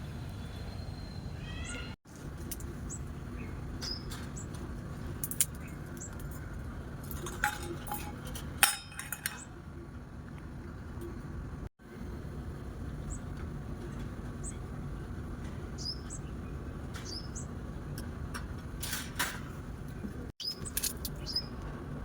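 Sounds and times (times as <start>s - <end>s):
bird chirps: 0.0s - 2.0s.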